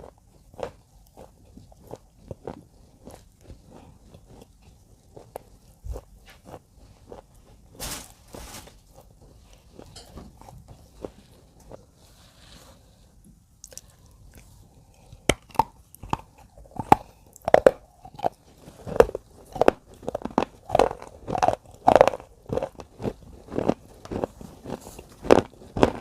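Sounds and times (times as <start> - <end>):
crunching: 13.6 - 26.0.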